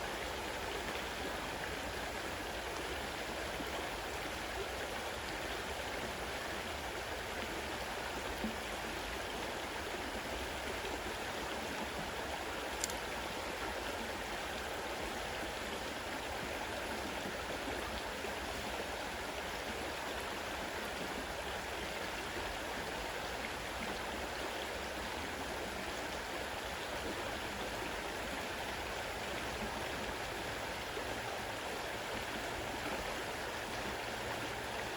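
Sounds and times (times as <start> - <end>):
river water rushing: 0.0 - 34.9.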